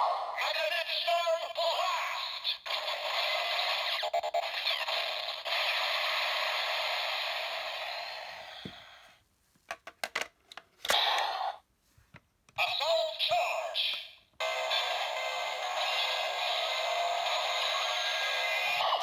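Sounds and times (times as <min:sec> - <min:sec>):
toy electronic sound effect: 0:01.2 - 0:08.6, 0:12.6 - 0:19.0.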